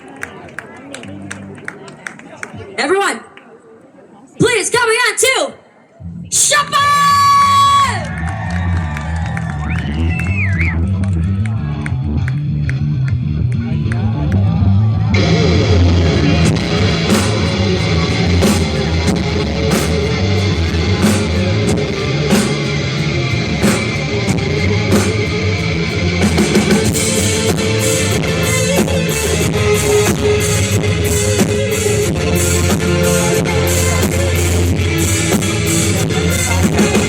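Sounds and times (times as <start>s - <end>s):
bass line: 6.0s - 37.0s
electric guitar: 9.2s - 37.0s
drum kit with cymbal hits: 15.2s - 37.0s.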